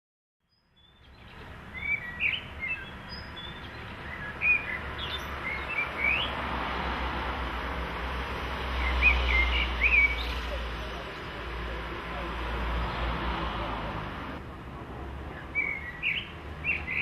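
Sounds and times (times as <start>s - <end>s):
small birds chirping: 0.4s - 6.7s, 8.3s - 12.6s, 15.2s - 17.0s.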